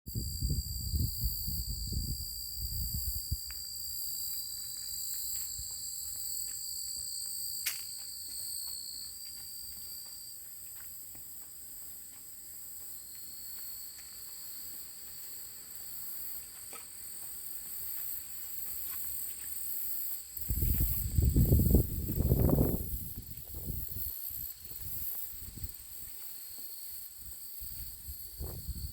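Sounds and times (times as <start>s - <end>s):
wind buffeting microphone: 0.1s - 3.5s, 20.4s - 25.8s, 27.2s - 28.9s
insects trilling: 0.1s - 28.9s.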